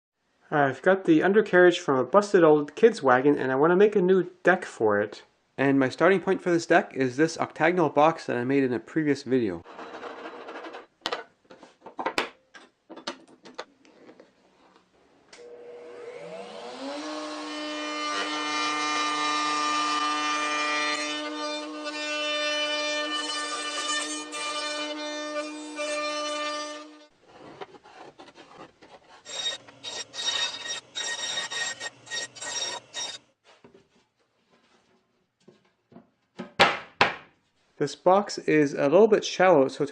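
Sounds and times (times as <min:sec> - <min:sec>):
power saw motor winding up: 0:15.4 - 0:17.5
rasping scraping on wood: 0:27.3 - 0:33.2.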